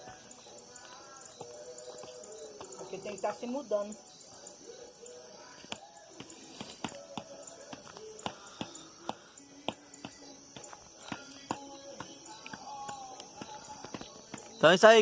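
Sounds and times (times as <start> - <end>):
night insects chirring: 0.0 - 15.0
bonfire crackling and popping: 5.7 - 15.0.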